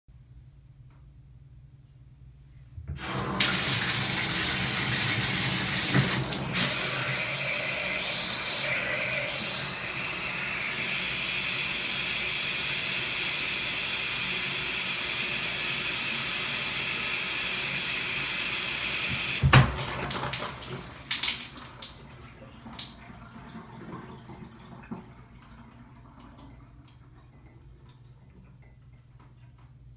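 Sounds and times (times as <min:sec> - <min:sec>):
shower shutoff clunk: 0:02.9 - 0:07.2, 0:19.1 - 0:20.4
shower head spraying water: 0:03.0 - 0:21.4
water dripping: 0:19.1 - 0:29.8.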